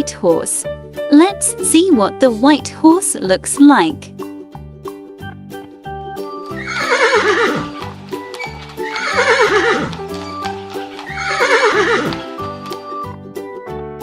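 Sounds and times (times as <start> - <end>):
light background music: 0.0 - 14.0
horse whinnying: 6.5 - 12.9.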